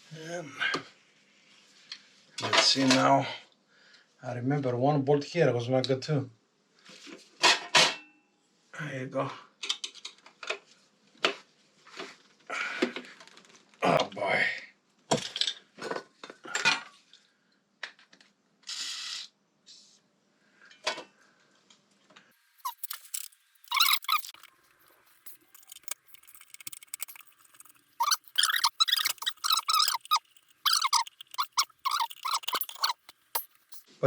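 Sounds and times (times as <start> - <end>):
rapid short squeaks: 22.6 - 33.9.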